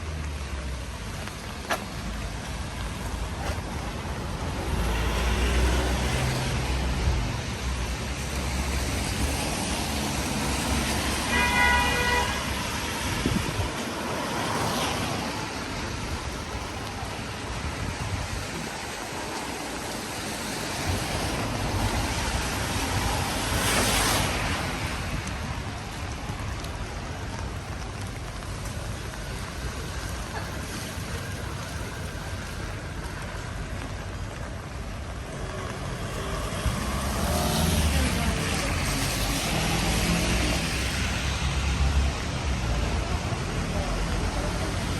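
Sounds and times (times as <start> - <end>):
traffic on wet street: 0.0 - 44.9
car horn toot: 11.3 - 12.4.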